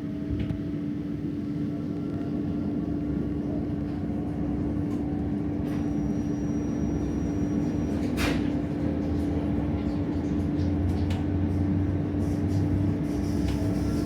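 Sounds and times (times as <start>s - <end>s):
passenger train rumbling: 0.9s - 14.0s.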